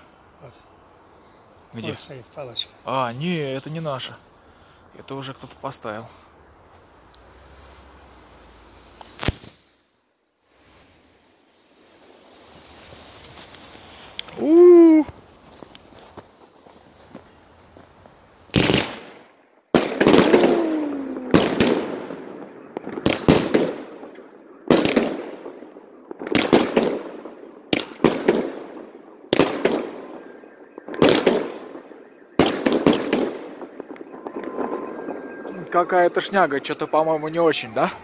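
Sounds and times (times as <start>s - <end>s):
firework bangs with echo: 18.5s - 36.4s.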